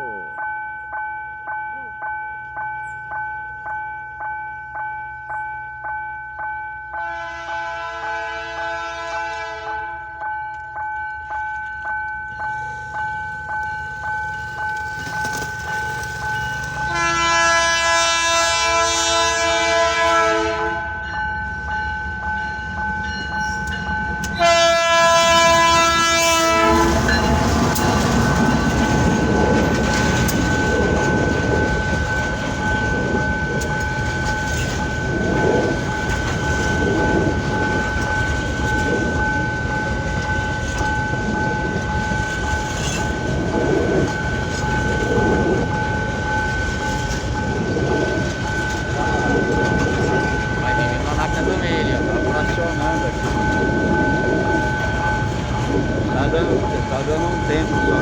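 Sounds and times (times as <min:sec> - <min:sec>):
steady high ringing tone: 0:00.0 - 0:08.3, 0:09.6 - 0:18.7, 0:20.8 - 0:58.0
locomotive air horn blasts: 0:07.0 - 0:10.0, 0:16.9 - 0:21.0, 0:24.4 - 0:27.2
freight train wheel clatter: 0:09.9 - 0:19.8, 0:22.3 - 0:58.0.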